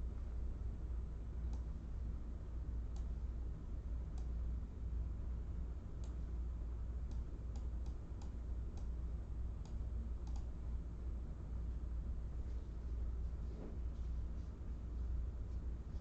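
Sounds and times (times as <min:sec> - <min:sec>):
low steady hum: 0:00.0 - 0:16.0
sharp clicks: 0:09.6 - 0:10.5.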